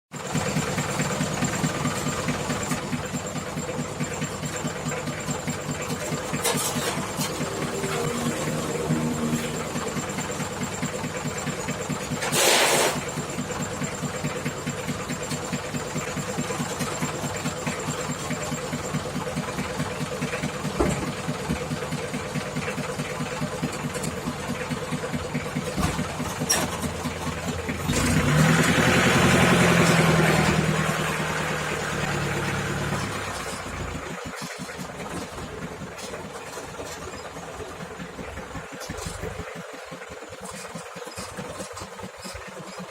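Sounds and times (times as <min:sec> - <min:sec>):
engine idling: 0:00.1 - 0:42.9
short hiss burst: 0:12.2 - 0:13.1.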